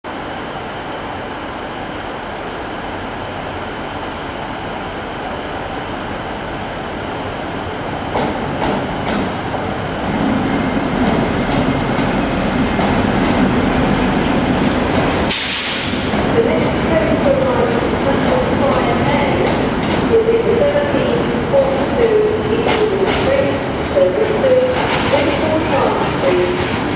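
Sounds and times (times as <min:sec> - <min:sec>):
train running on rails: 0:00.1 - 0:26.9.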